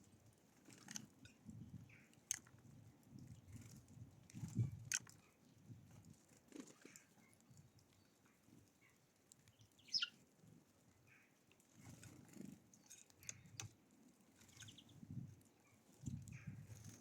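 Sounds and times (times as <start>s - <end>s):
faint bird chirps: 8.0s - 10.2s, 14.4s - 16.7s.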